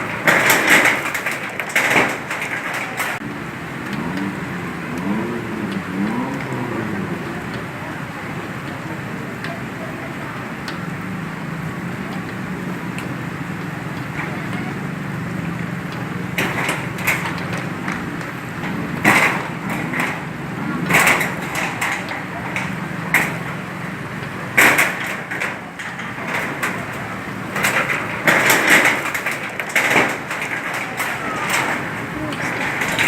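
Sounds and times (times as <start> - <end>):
knocks and clattering: 0.0 - 33.0
loud bangs: 13.1 - 33.0.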